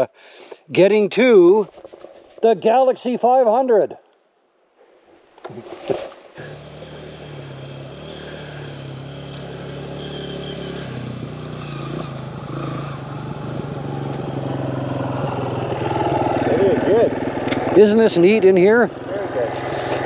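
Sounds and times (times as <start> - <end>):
dirt bike engine running: 6.4 - 20.0.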